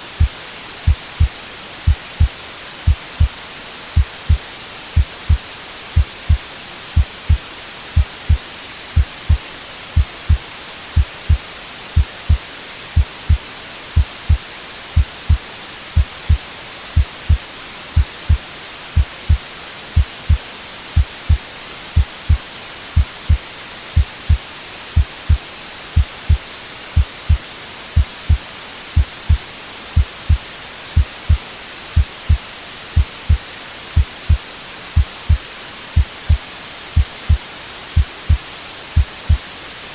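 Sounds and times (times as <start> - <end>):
white noise hiss: 0.0 - 39.9
heartbeat thumps: 0.9 - 1.3, 1.9 - 2.3, 2.9 - 3.3, 4.0 - 4.4, 5.0 - 5.4, 6.0 - 6.4, 7.0 - 8.4, 9.0 - 9.4, 10.0 - 10.4, 11.0 - 11.4, 12.0 - 12.4, 13.0 - 13.4, 14.0 - 14.4, 15.0 - 16.4, 17.0 - 17.4, 18.0 - 18.4, 19.0 - 19.4, 20.0 - 20.4, 21.0 - 21.4, 22.0 - 22.4, 23.0 - 23.4, 24.0 - 24.4, 25.0 - 26.4, 27.0 - 27.4, 28.0 - 28.4, 29.0 - 29.4, 30.0 - 31.4, 32.0 - 32.4, 33.0 - 33.4, 34.0 - 34.4, 35.0 - 35.4, 36.0 - 36.4, 37.0 - 37.4, 38.0 - 38.4, 39.0 - 39.4.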